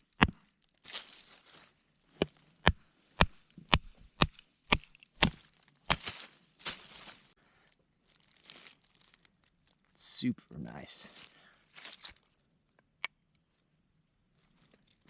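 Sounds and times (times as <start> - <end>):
baton knocking on knife: 2.7 - 5.4.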